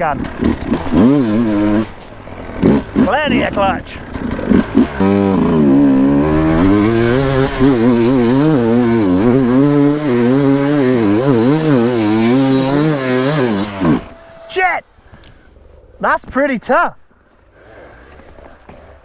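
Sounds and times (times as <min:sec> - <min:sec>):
dirt bike engine revving: 0:00.0 - 0:14.8.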